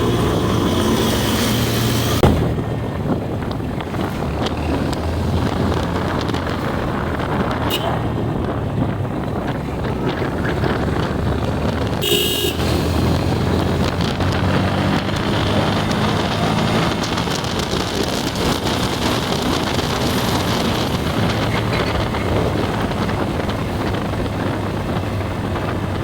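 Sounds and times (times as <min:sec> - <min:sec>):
motorbike engine and road rumble: 0:00.0 - 0:26.0
wind on microphone: 0:00.0 - 0:26.0
vehicle horn tooting: 0:07.6 - 0:08.3, 0:12.0 - 0:12.9.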